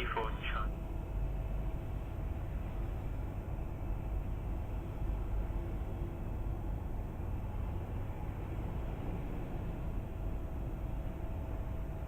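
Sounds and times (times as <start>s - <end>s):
airport background rumble: 0.0s - 12.0s
faint steady hum: 0.0s - 12.0s.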